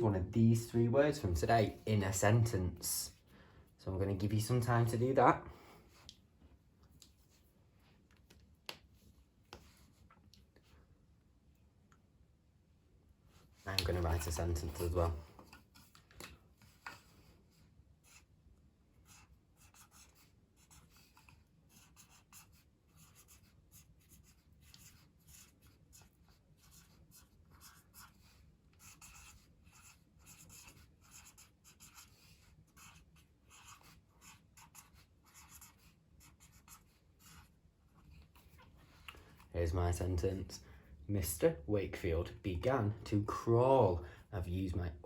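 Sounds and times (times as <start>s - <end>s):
pen scratching on paper: 19.0s - 38.6s.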